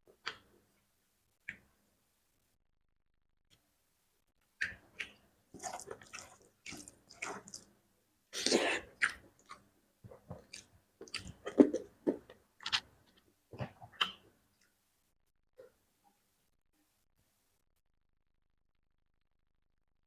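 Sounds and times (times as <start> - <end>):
person chewing wetly: 4.6 - 7.8, 8.4 - 14.4.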